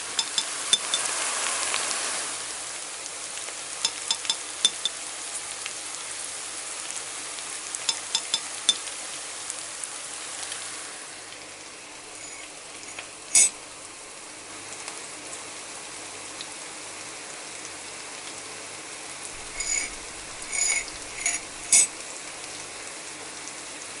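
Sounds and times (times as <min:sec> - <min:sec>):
utensil clinking against pan: 0:00.0 - 0:01.1, 0:03.8 - 0:05.0, 0:07.9 - 0:08.8, 0:12.1 - 0:13.6, 0:19.4 - 0:22.0
food sizzling in a pan: 0:00.0 - 0:24.0.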